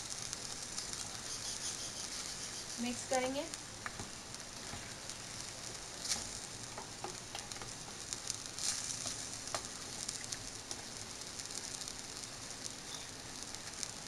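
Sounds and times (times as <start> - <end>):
crackles: 0.0 - 14.0
masala sizzling in oil: 0.0 - 14.0
spatula stirring and scraping: 0.7 - 3.1, 4.6 - 10.9.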